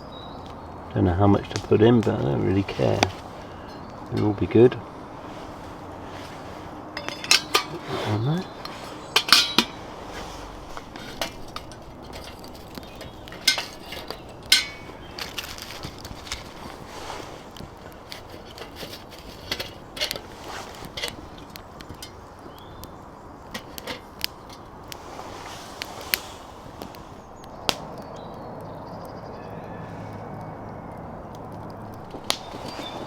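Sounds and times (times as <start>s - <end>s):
metal cookware clinking: 7.0s - 7.9s, 9.1s - 9.8s, 10.9s - 15.6s.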